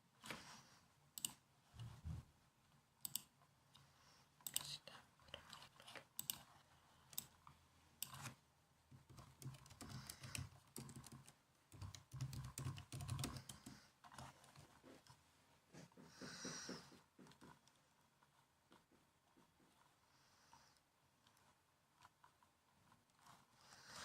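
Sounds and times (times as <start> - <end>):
laptop keyboard typing: 3.0 - 3.3, 6.2 - 7.4, 8.9 - 15.2.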